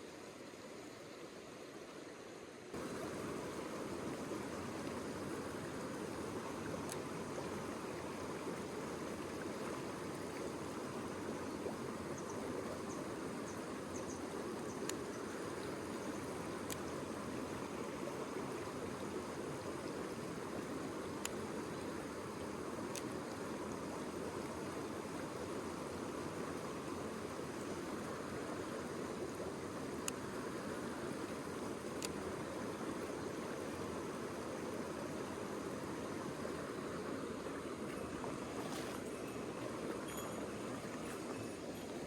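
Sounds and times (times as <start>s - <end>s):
stream water rushing: 0.0s - 42.0s
faint ticks: 6.8s - 7.1s, 14.0s - 15.2s, 16.6s - 17.0s, 21.2s - 21.4s, 22.9s - 23.1s, 30.0s - 30.2s, 31.9s - 32.2s.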